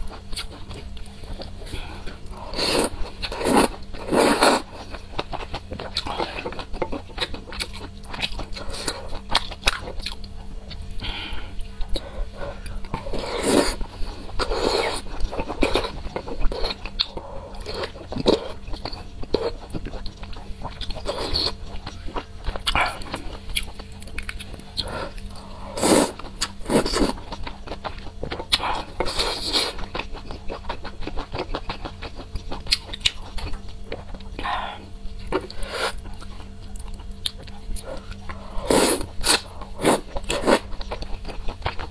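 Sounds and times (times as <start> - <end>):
slurping food: 13.0 - 13.8, 25.7 - 27.2, 38.5 - 40.6.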